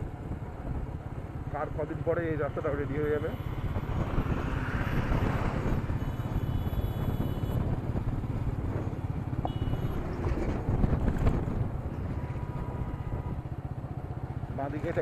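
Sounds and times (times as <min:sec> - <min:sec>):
wind noise: 0:03.4 - 0:13.5.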